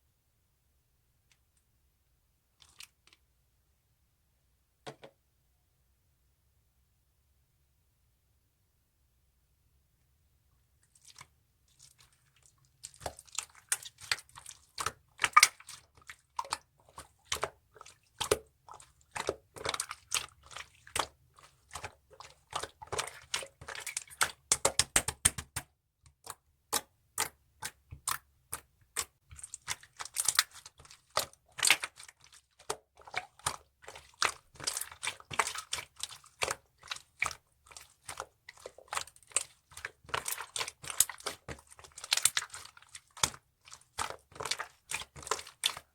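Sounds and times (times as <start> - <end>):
slime squishing with sticky clicks: 11.0 - 45.9.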